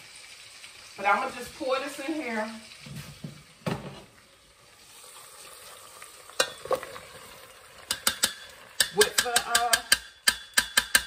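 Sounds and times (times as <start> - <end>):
cabbage sizzling in grease: 0.0 - 9.9
utensil clicking against pot: 7.8 - 11.0.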